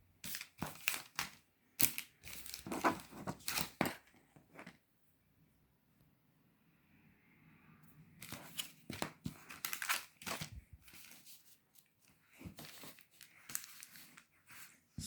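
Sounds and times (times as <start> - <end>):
plastic wrapper tearing and crinkling: 0.3 - 3.9, 8.2 - 11.2, 12.6 - 14.2.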